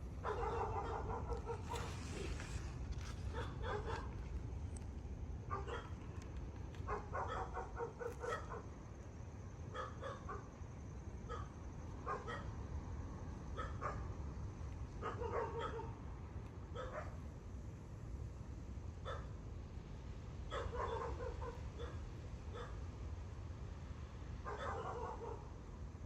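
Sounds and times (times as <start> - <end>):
steady low rumble: 0.0 - 7.7.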